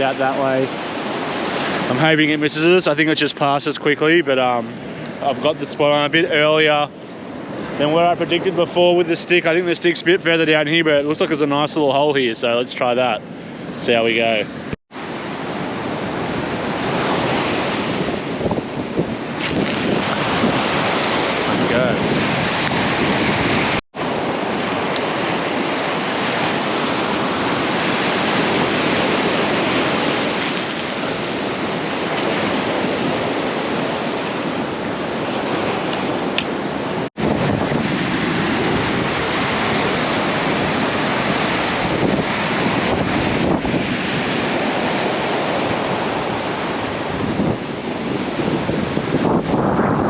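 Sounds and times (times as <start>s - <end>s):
ocean surf on beach: 0.0s - 50.0s
wind buffeting microphone: 15.1s - 50.0s.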